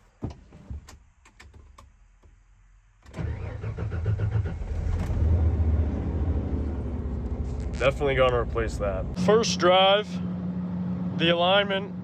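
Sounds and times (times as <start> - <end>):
truck engine cranking and starting: 3.1 - 12.0.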